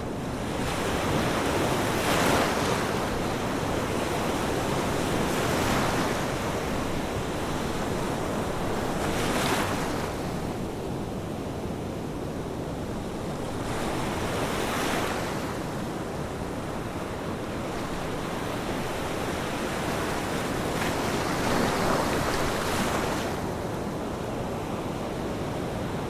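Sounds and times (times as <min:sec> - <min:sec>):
ocean waves washing ashore: 0:00.0 - 0:26.0.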